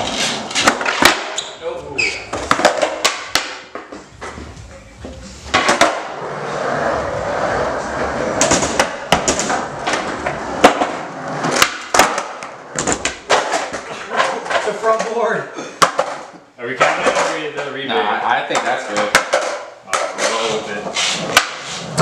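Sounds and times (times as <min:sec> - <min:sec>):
skateboard wooden clacks: 0:00.0 - 0:01.4, 0:08.4 - 0:15.1, 0:18.5 - 0:22.0
skateboard wheels rolling: 0:00.0 - 0:15.1, 0:18.6 - 0:22.0.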